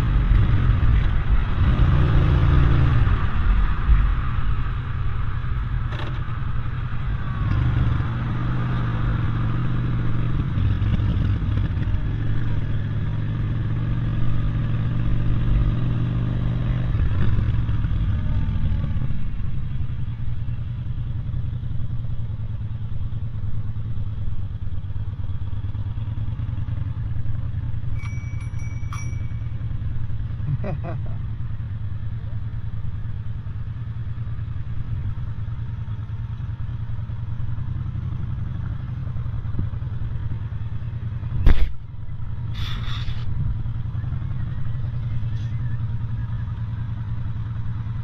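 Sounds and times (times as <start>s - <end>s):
low traffic rumble: 0.0s - 48.0s
vehicle engine humming: 0.0s - 48.0s.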